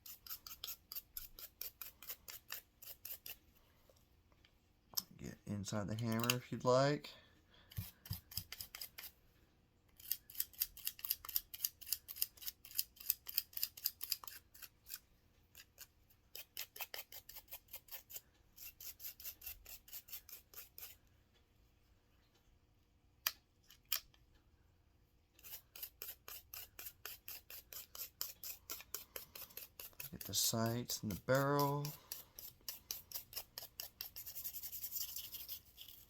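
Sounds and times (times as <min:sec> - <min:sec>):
brush scrubbing metal: 0:25.4 - 0:36.0.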